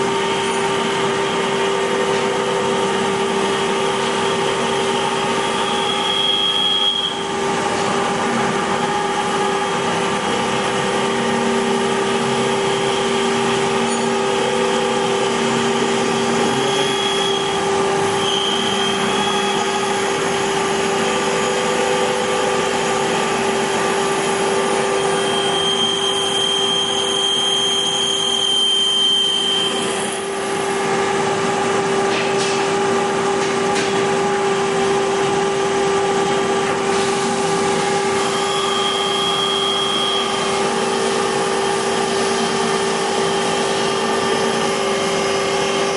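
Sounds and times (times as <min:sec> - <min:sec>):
high-pitched whines: 0:15.4 - 0:20.0.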